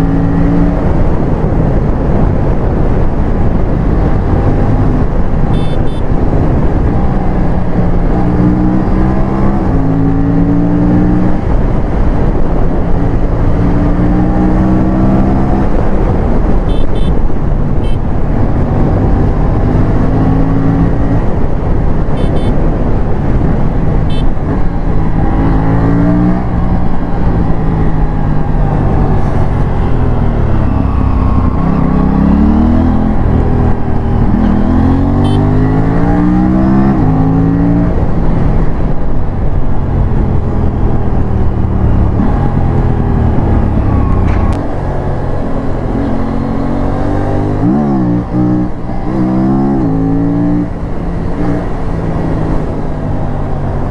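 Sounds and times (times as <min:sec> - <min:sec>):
motorcycle engine accelerating: 0:17.8 - 0:53.9.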